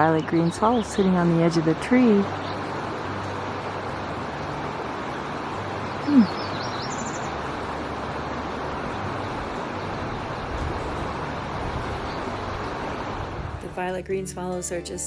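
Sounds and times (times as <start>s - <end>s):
steady outdoor hiss: 0.0s - 15.0s
bird twittering chirps: 5.8s - 7.5s.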